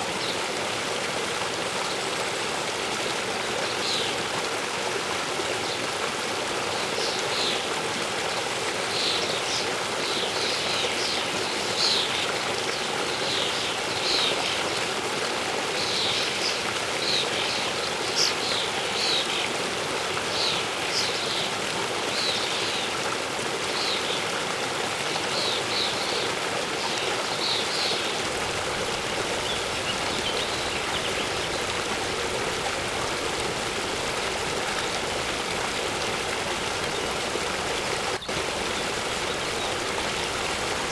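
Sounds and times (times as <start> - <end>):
waterfall rushing: 28.1 - 40.9
songbird chirping: 28.2 - 40.9.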